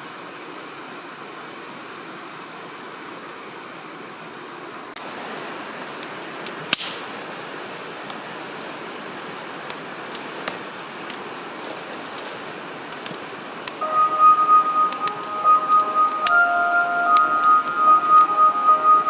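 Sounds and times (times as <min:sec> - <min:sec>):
wood fire crackling: 0:05.0 - 0:08.9, 0:09.7 - 0:19.0
fire snaps and pops: 0:05.9 - 0:08.9, 0:09.7 - 0:16.4
steady whistling tone: 0:13.8 - 0:19.0.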